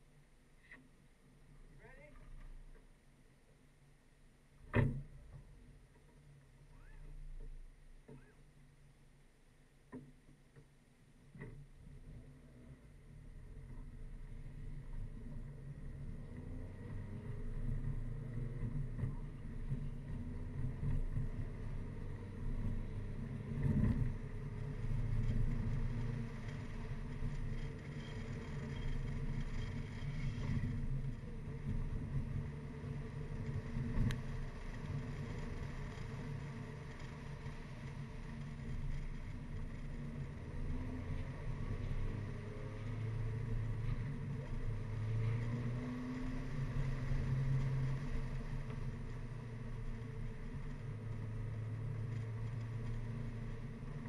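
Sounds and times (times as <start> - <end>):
car engine revving through gears: 12.1 - 54.0
tyre and wind noise: 13.5 - 54.0.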